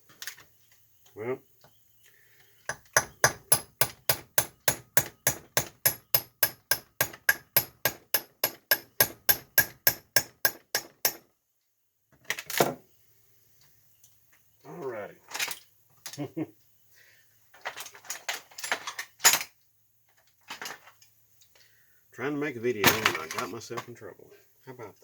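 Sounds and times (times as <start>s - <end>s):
hammer striking metal: 2.7s - 11.2s.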